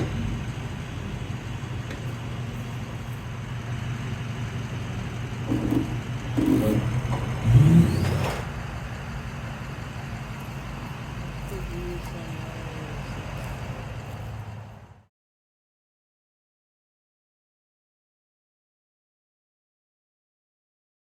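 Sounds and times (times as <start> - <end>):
low engine hum: 0.0 - 15.1.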